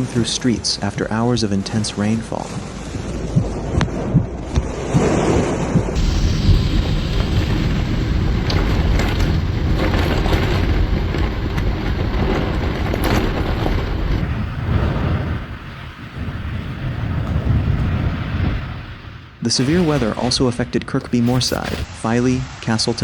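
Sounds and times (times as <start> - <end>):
wind buffeting microphone: 5.7 - 21.9
floodwater rushing: 6.0 - 11.2, 19.4 - 21.9.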